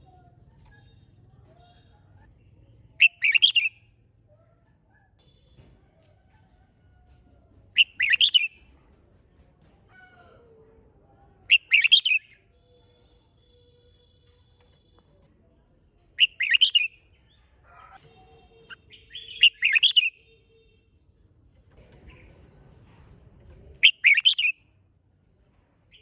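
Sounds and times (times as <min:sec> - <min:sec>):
faint bird chirps: 0:00.0 - 0:07.0.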